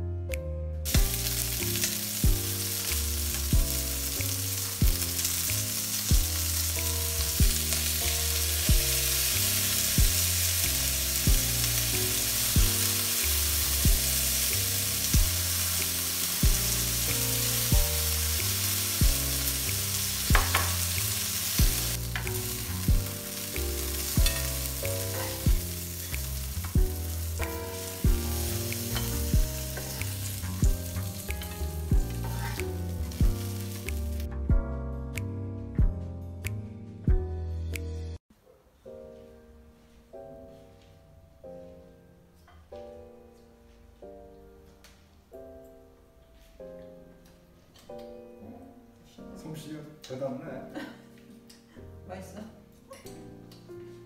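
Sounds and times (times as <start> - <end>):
soft background music with beat: 0.0 - 38.2, 38.8 - 54.0
skewers sizzling in frying pan: 0.9 - 34.3.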